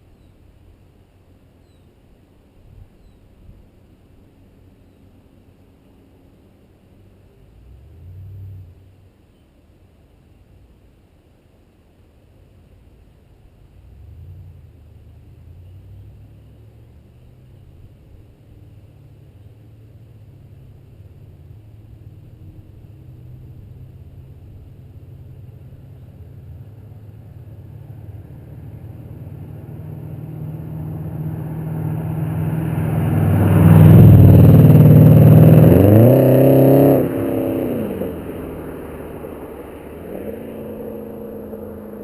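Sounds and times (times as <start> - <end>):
car engine driving by: 7.4 - 9.1, 13.7 - 42.0.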